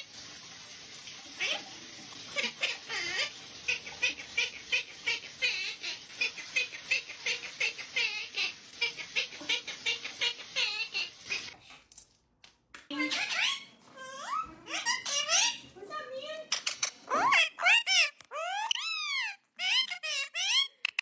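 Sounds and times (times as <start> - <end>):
parrot chirps and whistles: 13.0 - 15.6, 17.1 - 21.0.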